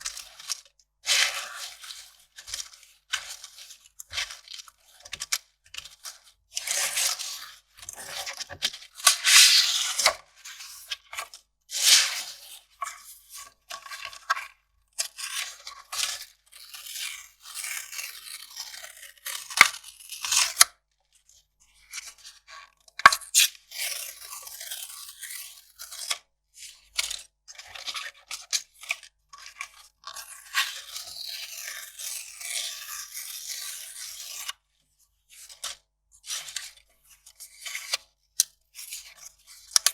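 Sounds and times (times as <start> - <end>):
paper crinkling and tearing: 9.0 - 10.1, 11.8 - 12.4
sharp paper snaps: 9.1 - 10.1.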